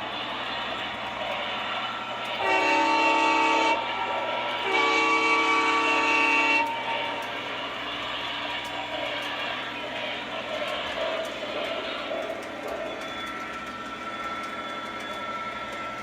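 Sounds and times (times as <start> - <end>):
model train running on track: 0.0 - 16.0
model train horn: 2.4 - 3.8, 4.6 - 6.8.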